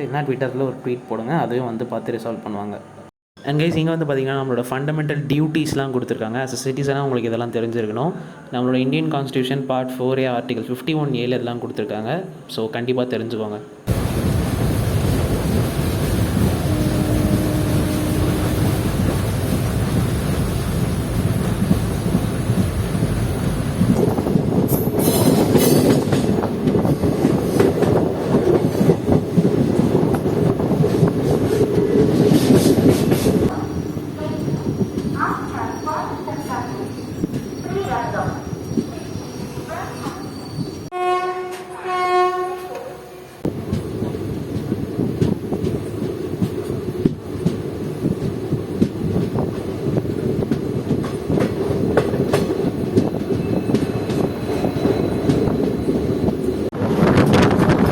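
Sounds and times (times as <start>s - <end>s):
train wheels clattering over rails: 18.2s - 33.5s, 43.6s - 57.9s.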